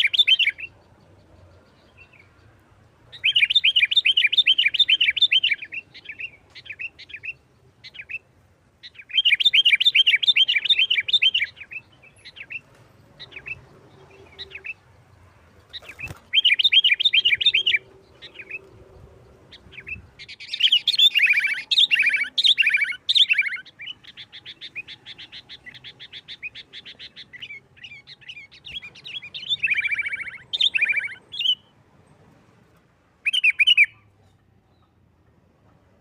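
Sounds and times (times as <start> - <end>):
bulbul chattering song: 0.0 - 31.8, 33.2 - 34.1.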